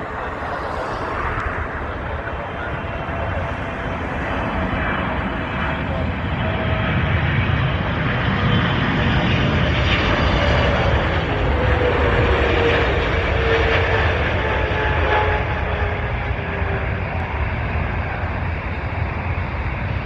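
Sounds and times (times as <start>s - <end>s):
faint jet engine whine: 0.0s - 20.0s
jet engine rumble: 0.0s - 20.0s.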